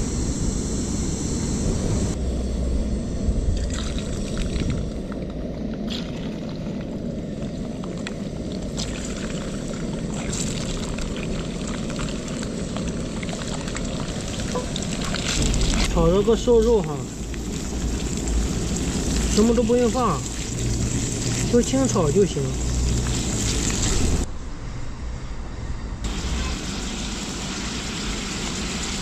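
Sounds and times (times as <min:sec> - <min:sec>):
pork fat crackling in pan: 0:08.6 - 0:24.2.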